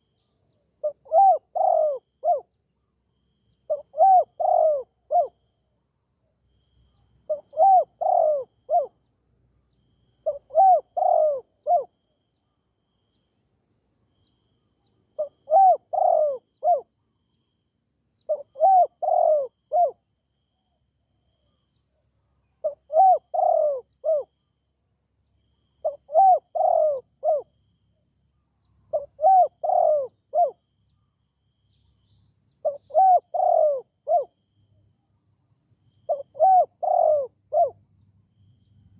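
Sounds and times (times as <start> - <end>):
dove cooing: 0.8 - 2.5, 3.7 - 5.4, 7.3 - 9.0, 10.2 - 11.9, 15.2 - 16.9, 18.3 - 20.0, 22.6 - 24.3, 25.8 - 27.5, 28.9 - 30.6, 32.6 - 34.3, 36.1 - 37.8.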